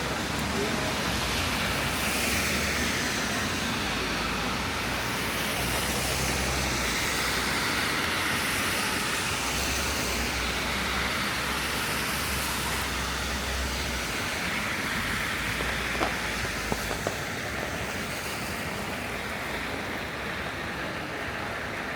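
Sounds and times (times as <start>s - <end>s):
rain hiss: 0.0s - 21.9s
traffic on wet streets: 0.0s - 21.9s.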